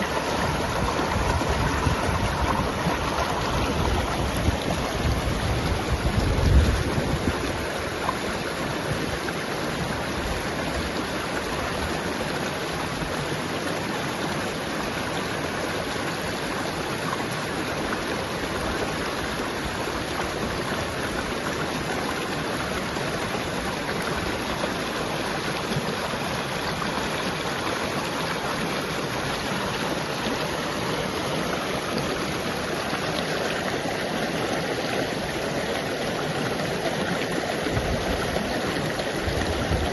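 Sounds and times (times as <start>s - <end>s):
water rushing: 0.0s - 39.9s
wind buffeting microphone: 0.1s - 7.8s, 37.6s - 39.9s.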